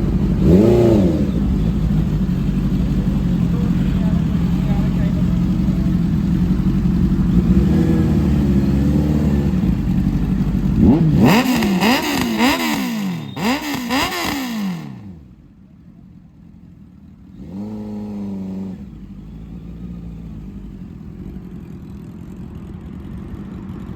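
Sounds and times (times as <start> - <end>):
motorbike engine revving: 0.0 - 15.2, 17.4 - 21.0.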